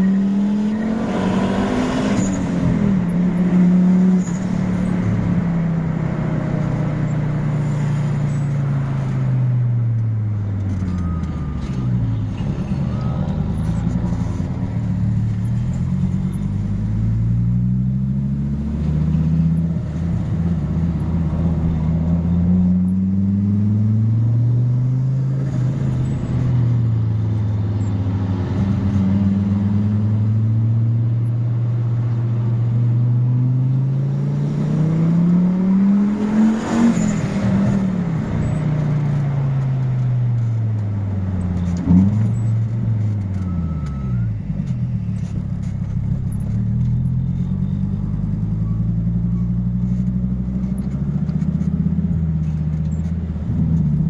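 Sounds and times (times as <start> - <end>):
turbocharged car engine accelerating: 0.0 - 9.4, 10.6 - 54.0.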